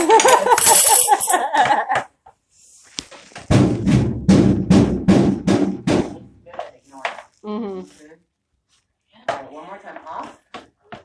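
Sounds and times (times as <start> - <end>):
drum-like bangs: 3.5 - 6.4.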